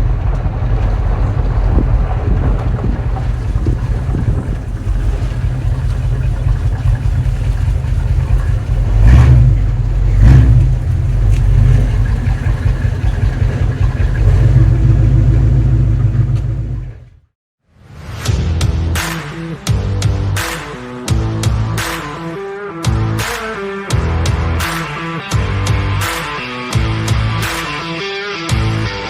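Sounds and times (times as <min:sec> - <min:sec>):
wind rumble on microphone: 0:00.0 - 0:17.0
vehicle running: 0:00.0 - 0:17.3.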